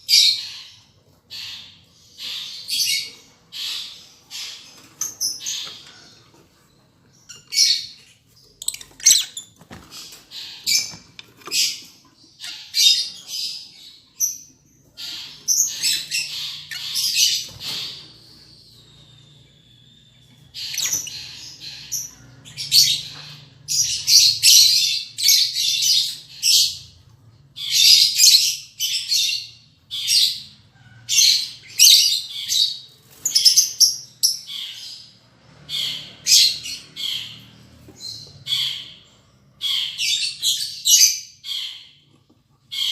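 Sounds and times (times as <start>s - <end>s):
lovebirds chirping shrilly: 7.1s - 27.0s, 27.6s - 42.0s.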